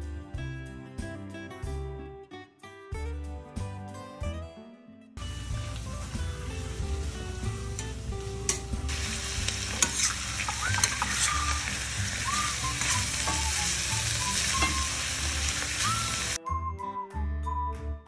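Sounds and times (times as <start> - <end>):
food sizzling in a pan: 5.2 - 16.4.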